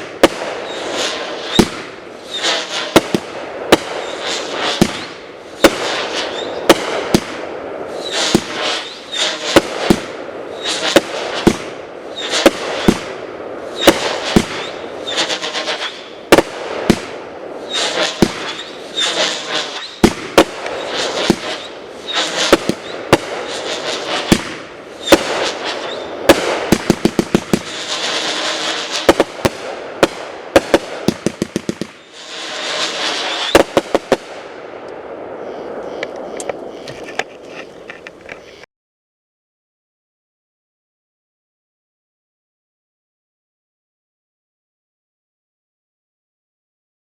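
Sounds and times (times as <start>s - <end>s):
hissing crackling bursts: 0.0s - 34.6s
firework bangs: 0.0s - 35.1s.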